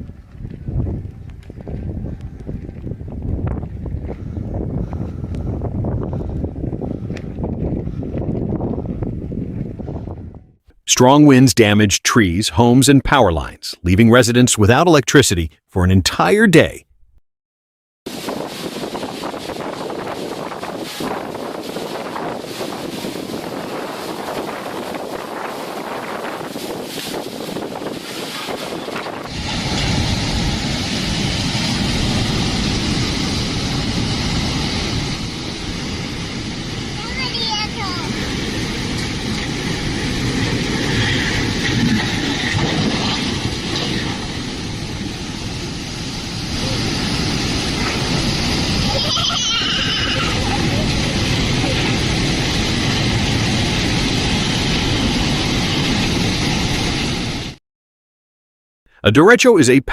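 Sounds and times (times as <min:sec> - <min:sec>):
storm wind roaring: 0:00.0 - 0:10.6, 0:18.1 - 0:57.6.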